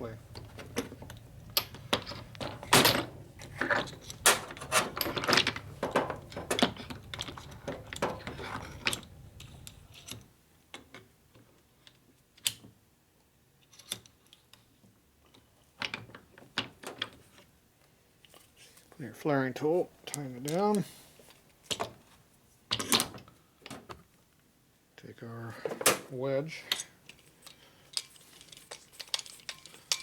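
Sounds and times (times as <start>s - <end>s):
metal tool parts clattering: 0.3s - 10.1s, 27.9s - 30.0s.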